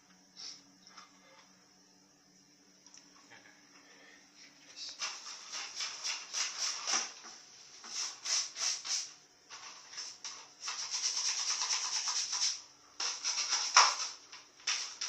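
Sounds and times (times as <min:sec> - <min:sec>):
brush scrubbing a hard surface: 0:04.9 - 0:15.0.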